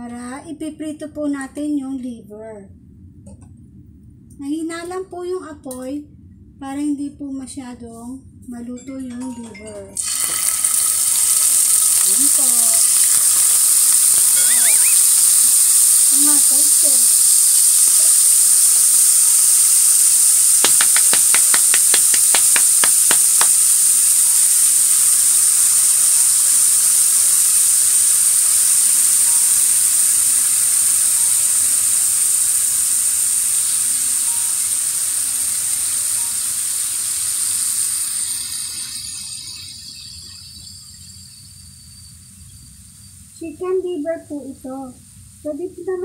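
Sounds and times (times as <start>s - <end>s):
liver frying in hot oil: 10.0s - 41.8s
sharp clicks: 20.6s - 23.8s.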